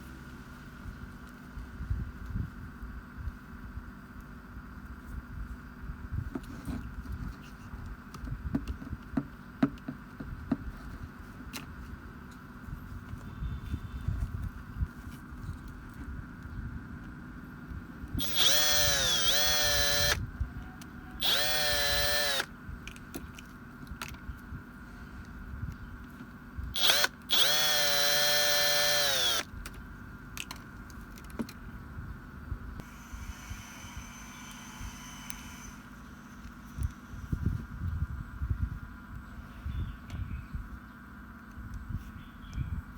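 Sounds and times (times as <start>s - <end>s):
power tool motor whining: 18.2s - 20.2s, 21.2s - 22.5s, 26.7s - 29.5s, 32.8s - 37.1s.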